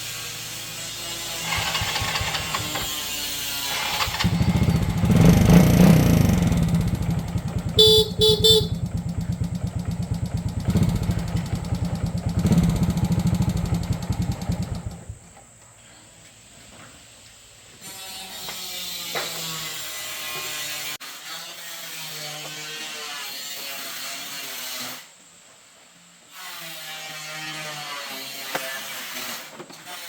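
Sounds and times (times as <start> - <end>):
small motorcycle engine running: 0.7 - 15.4
motorcycle horn beeps: 1.5 - 2.8, 3.9 - 12.9.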